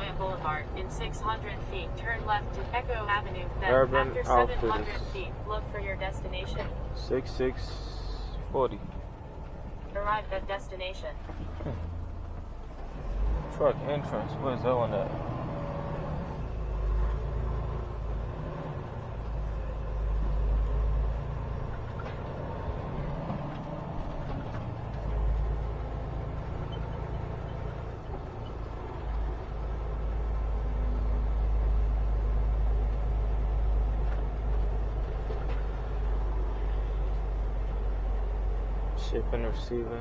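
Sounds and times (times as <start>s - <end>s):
diesel truck engine rumble: 0.0s - 40.0s.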